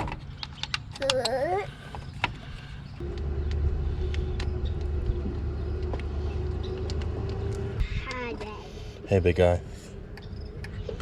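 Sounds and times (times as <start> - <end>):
vehicle engine running: 2.5 - 11.0.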